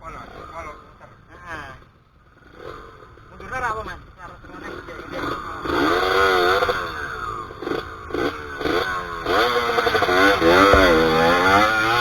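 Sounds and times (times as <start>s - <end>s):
dirt bike engine revving: 8.6s - 12.0s.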